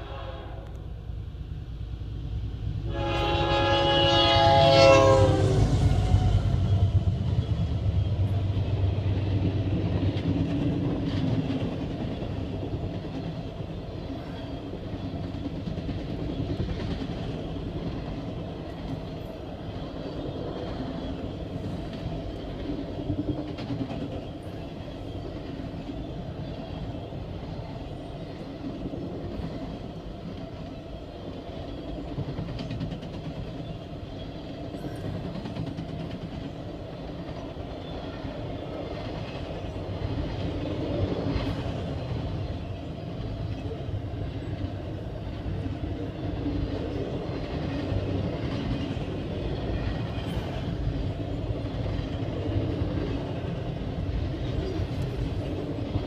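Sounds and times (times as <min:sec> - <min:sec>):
locomotive air horn chord: 0:00.0 - 0:00.8, 0:02.9 - 0:06.7
train cars rumbling past: 0:00.0 - 0:56.0.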